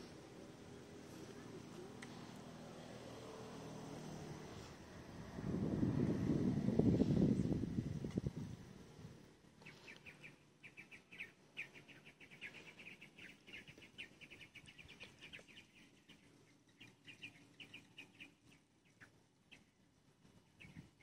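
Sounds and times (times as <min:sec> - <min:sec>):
faint bird chirping: 0:09.4 - 0:21.0.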